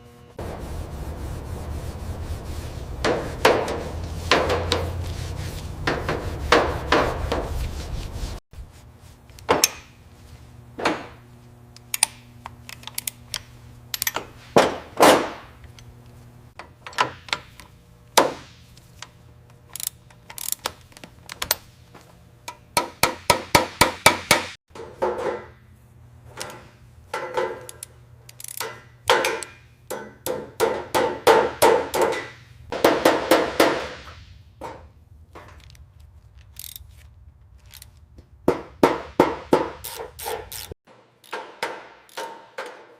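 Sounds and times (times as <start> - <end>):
hand tools clicking and knocking: 11.8 - 14.8, 26.3 - 33.3, 34.6 - 42.9.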